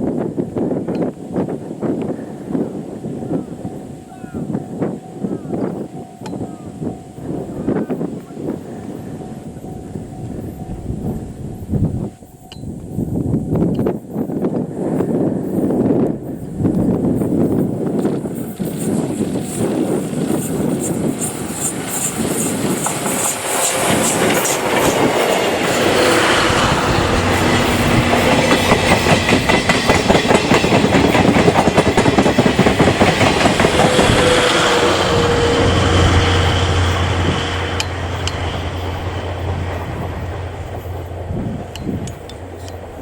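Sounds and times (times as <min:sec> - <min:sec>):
train wheels clacking over rail joints: 0:18.0 - 0:43.0.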